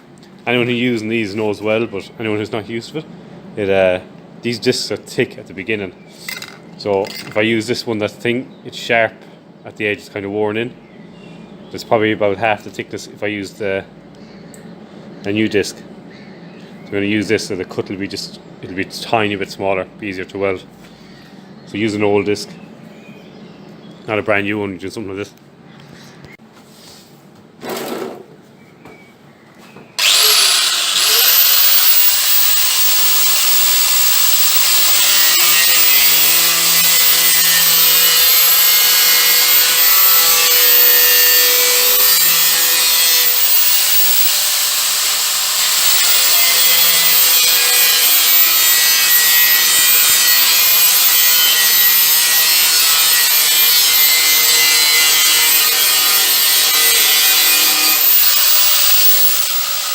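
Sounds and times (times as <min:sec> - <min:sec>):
angle grinder cutting sheet metal: 0:30.0 - 0:59.9.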